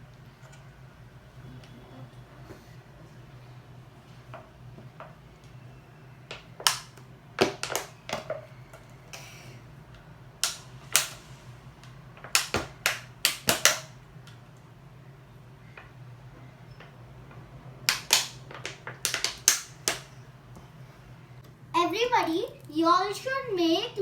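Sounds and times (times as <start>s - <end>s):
plastic bottle clicking and cracking: 6.3s - 8.4s, 12.2s - 14.0s, 17.9s - 20.1s.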